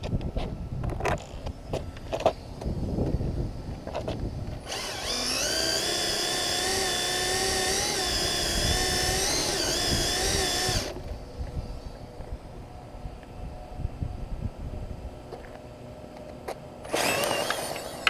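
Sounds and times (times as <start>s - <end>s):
electric motor whine: 1.0s - 11.9s, 16.8s - 18.0s.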